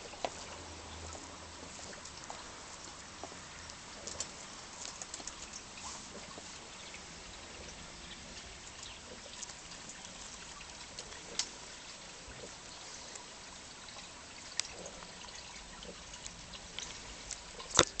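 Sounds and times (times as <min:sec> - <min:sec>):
beak clicks: 0:16.2 - 0:18.0.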